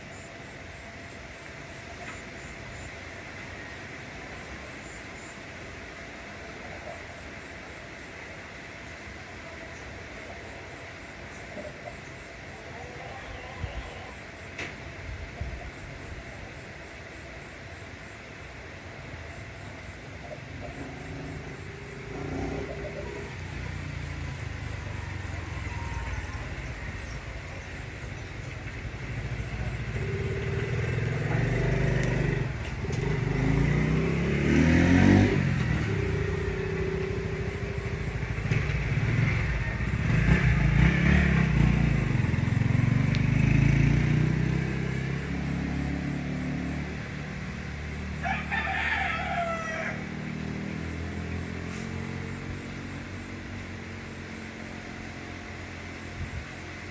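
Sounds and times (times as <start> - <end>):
vehicles passing on road: 0.0 - 56.9
rooster crowing: 12.6 - 14.3, 24.2 - 28.3, 35.8 - 40.9, 48.2 - 50.6.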